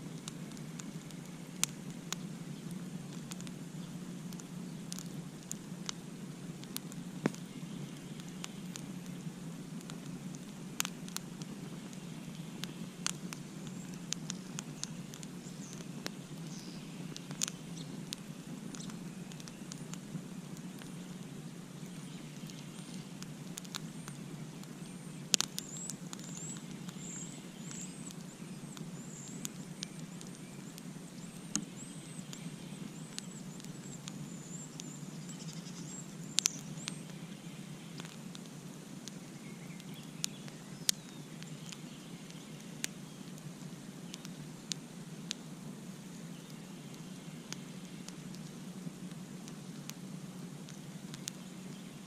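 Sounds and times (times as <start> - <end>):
burning wood crackling and popping: 0.0 - 52.0
campfire hissing: 0.0 - 52.0
faint high chirping: 21.8 - 38.1.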